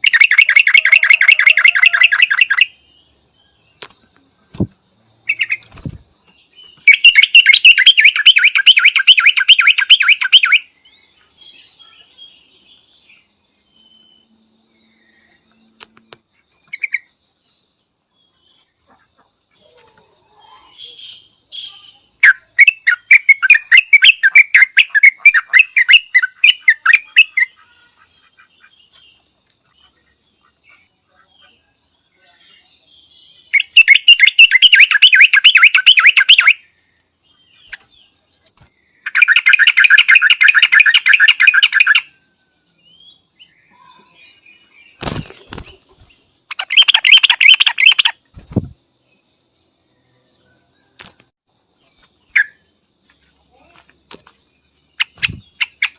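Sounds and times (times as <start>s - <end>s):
bulbul chattering: 0.0s - 10.6s, 20.7s - 29.0s, 33.5s - 36.7s, 38.5s - 42.1s, 44.9s - 48.8s, 54.9s - 55.9s.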